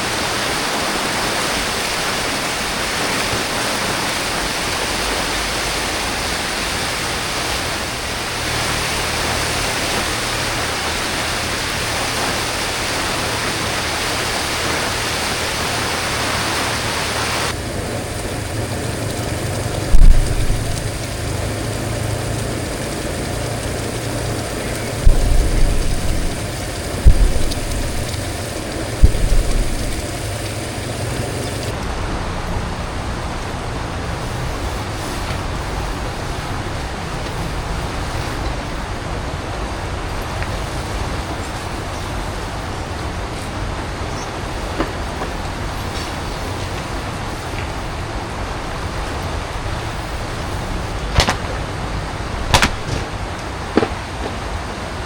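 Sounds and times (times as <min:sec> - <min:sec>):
water rushing: 0:00.0 - 0:55.0
vehicle-like rumble: 0:01.1 - 0:55.0
heavy low thumps: 0:19.9 - 0:21.1, 0:25.0 - 0:31.2, 0:51.1 - 0:54.0.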